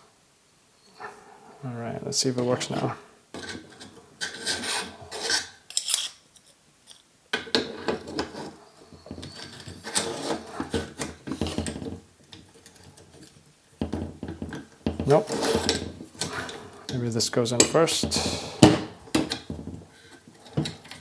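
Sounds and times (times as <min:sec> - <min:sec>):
metal scraping on metal: 0:02.4 - 0:06.2, 0:07.7 - 0:11.9, 0:15.1 - 0:18.8.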